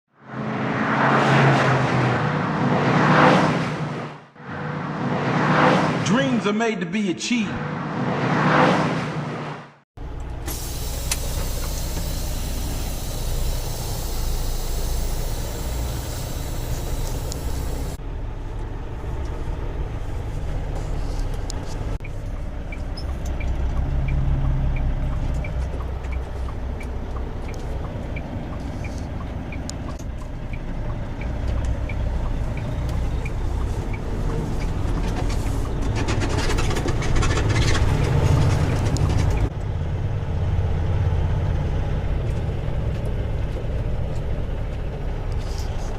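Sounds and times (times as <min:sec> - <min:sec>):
diesel truck engine running: 0:10.0 - 0:45.9
turn signal clicking: 0:21.4 - 0:35.9.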